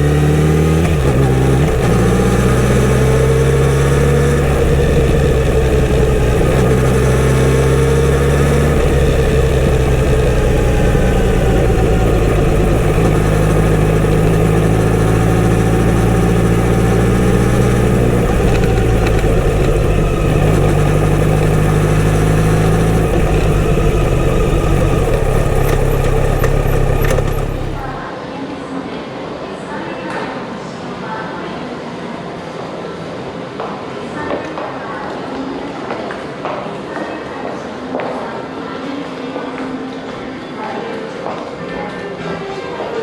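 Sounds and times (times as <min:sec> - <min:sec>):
motorcycle engine running: 0:00.0 - 0:28.1.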